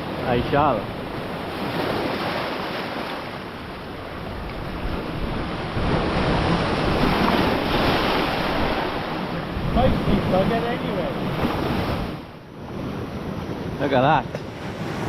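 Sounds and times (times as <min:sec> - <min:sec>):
sea surf breaking: 0:00.0 - 0:15.0
wind buffeting microphone: 0:03.7 - 0:15.0.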